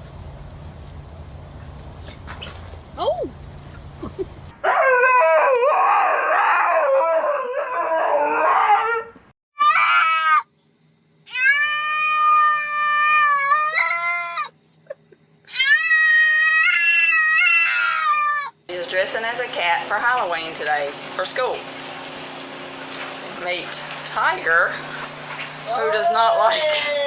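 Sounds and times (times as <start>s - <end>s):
cat yowling and meowing: 4.7s - 10.5s, 11.3s - 14.5s, 15.5s - 18.6s.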